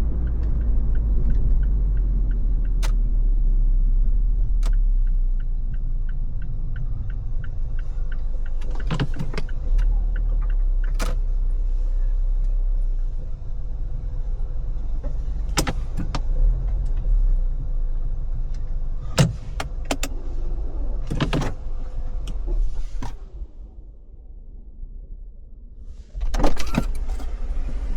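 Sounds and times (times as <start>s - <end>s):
turn signal ticking: 0.0s - 11.6s
car road rumble: 0.0s - 27.9s
sharp clicks and knocks: 15.0s - 17.1s, 19.2s - 20.2s.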